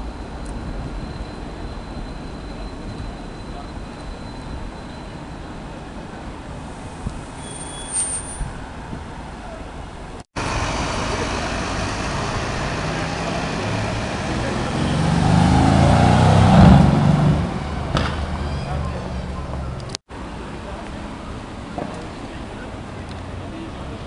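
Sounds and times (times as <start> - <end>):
city street traffic: 0.0 - 24.0
car driving past: 10.4 - 19.8.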